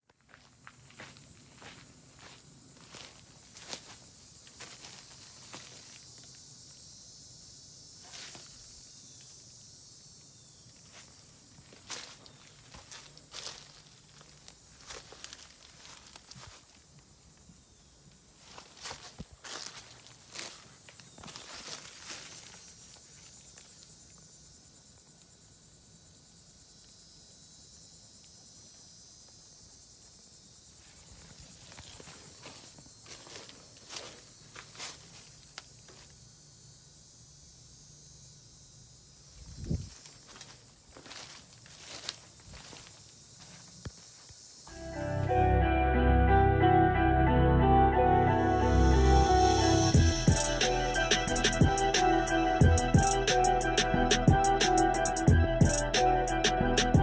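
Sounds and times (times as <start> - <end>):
high insect chorus: 0.1 - 45.0, 48.5 - 57.0
steps or rustles: 10.8 - 16.8, 18.4 - 23.8, 31.1 - 36.1, 39.6 - 44.4.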